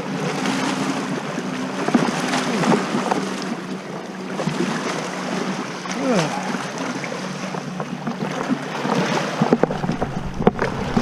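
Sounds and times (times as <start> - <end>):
motorboat engine humming: 0.0 - 11.0
wind noise: 8.7 - 11.0.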